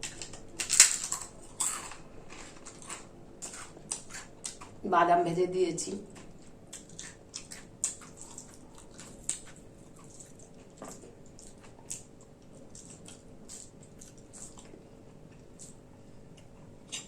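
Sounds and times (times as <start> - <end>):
wet chewing and lip-smacking: 2.7 - 4.8, 6.1 - 17.0.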